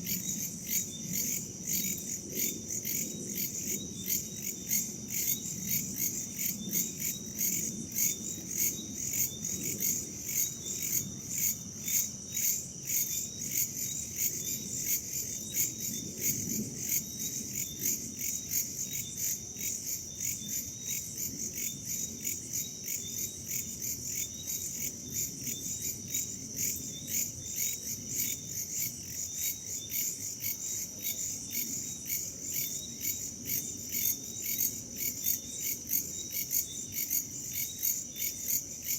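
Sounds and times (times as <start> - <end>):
low rumble of wind: 0.0 - 19.6
crickets chirping: 0.0 - 38.9.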